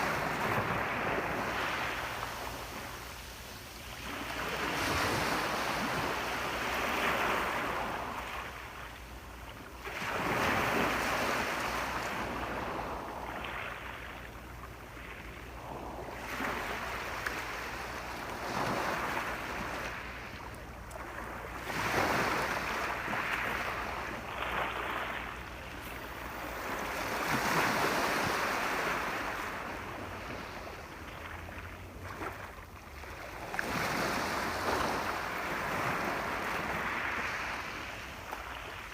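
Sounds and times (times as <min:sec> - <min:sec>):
sea waves breaking on shore: 0:00.0 - 0:38.9.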